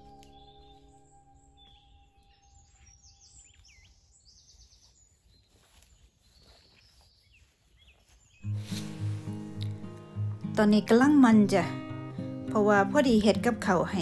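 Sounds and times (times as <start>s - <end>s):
small birds chirping and trilling: 0.0s - 9.2s.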